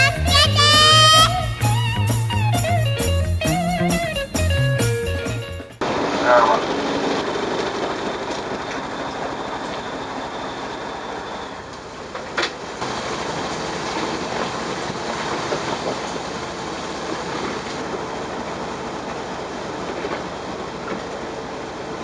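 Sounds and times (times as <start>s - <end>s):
boat engine low beat: 0.0s - 5.8s
water wash: 5.8s - 22.0s.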